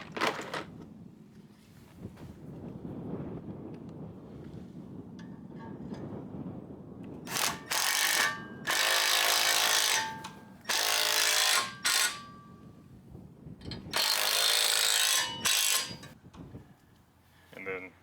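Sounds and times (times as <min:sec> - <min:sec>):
power drill whining: 0:07.3 - 0:12.4, 0:13.9 - 0:16.2.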